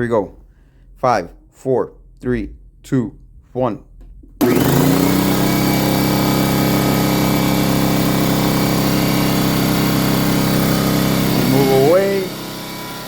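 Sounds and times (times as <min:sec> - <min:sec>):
air compressor running: 0:04.4 - 0:13.0.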